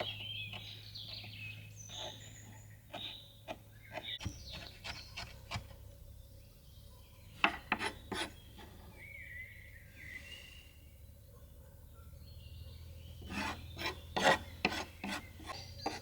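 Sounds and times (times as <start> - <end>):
bird chirping: 0.0 - 16.0
blade scraping on wood: 7.5 - 8.9, 13.2 - 16.0.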